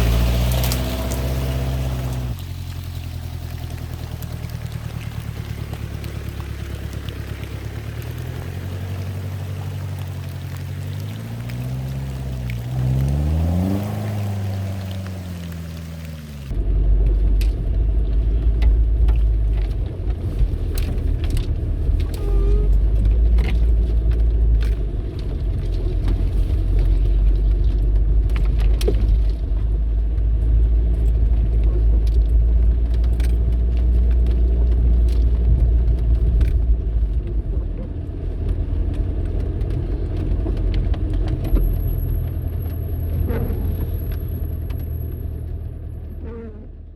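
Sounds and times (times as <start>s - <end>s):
diesel engine deep rumble: 0.0s - 46.9s
sharp clicks and rattles: 17.0s - 45.5s.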